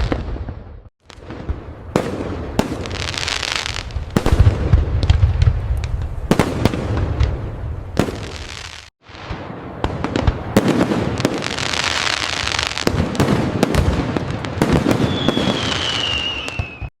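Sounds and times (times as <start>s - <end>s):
fireworks bangs and crackling: 0.0s - 16.9s
firework whistle gliding downward: 14.9s - 16.9s.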